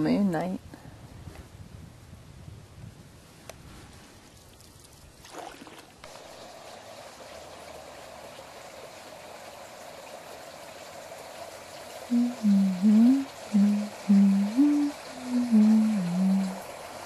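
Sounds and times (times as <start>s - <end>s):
water trickling: 4.4s - 17.0s
canoe paddle splashing: 5.2s - 6.2s.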